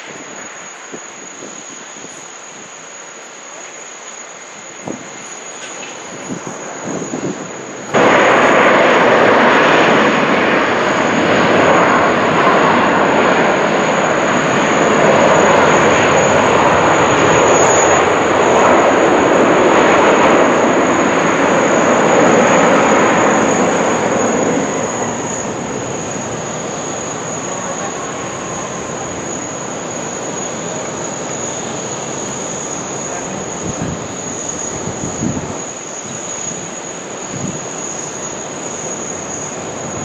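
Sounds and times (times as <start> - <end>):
jet engines roaring: 0.0 - 40.0.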